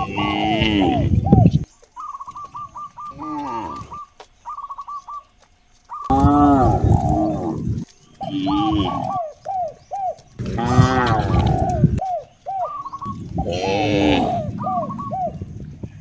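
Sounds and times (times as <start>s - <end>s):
cows mooing: 0.0s - 1.6s, 3.1s - 4.0s, 6.1s - 9.3s, 10.4s - 12.0s, 13.1s - 15.4s
quick chirps: 6.0s - 16.0s.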